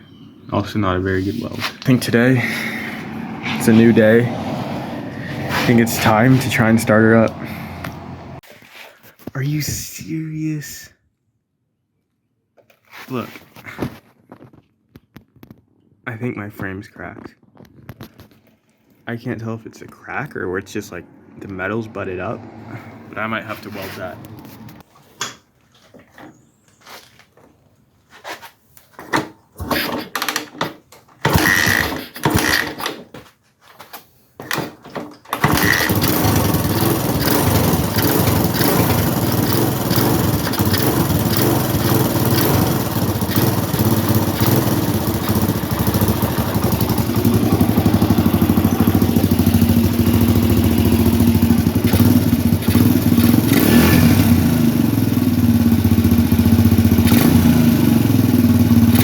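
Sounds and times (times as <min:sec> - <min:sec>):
dirt bike engine running: 0:01.4 - 0:08.4, 0:31.3 - 0:32.6, 0:35.4 - 0:59.0.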